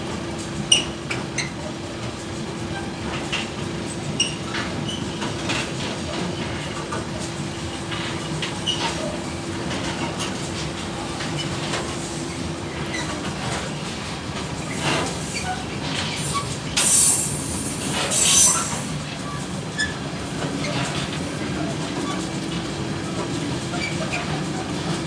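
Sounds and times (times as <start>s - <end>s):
freight train rumbling past: 0.0s - 25.0s
wagon wheels squealing: 4.2s - 5.3s, 8.5s - 9.2s, 12.4s - 13.2s, 14.6s - 22.3s, 23.0s - 24.9s.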